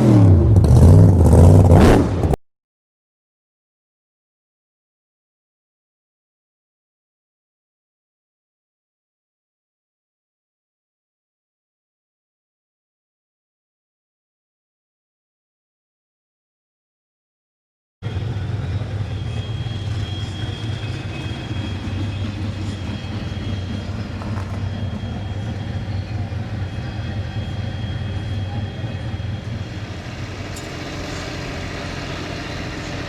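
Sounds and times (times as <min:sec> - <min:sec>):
car engine idling: 0:18.0 - 0:33.0
faint high whine: 0:18.1 - 0:33.0.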